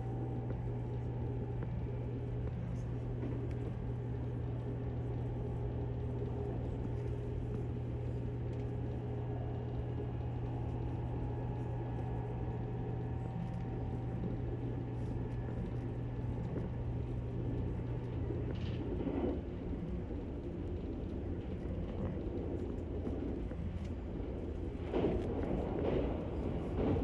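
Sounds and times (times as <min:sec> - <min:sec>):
steady low hum: 0:00.0 - 0:27.0
train running noise: 0:23.2 - 0:27.0.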